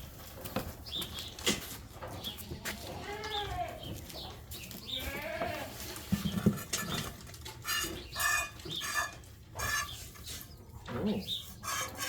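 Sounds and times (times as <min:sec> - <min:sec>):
goats bleating: 0:02.5 - 0:03.9, 0:04.8 - 0:05.8.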